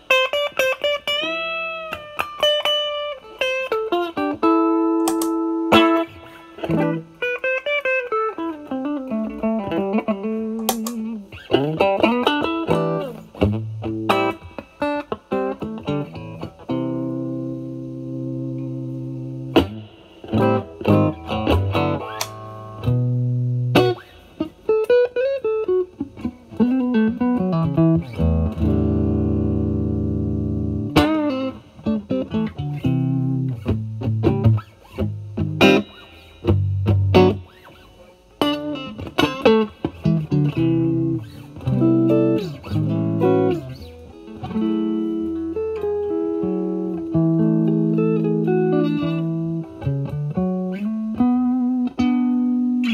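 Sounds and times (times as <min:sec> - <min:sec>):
overdriven electric guitar blues run: 0:00.0 - 0:52.9.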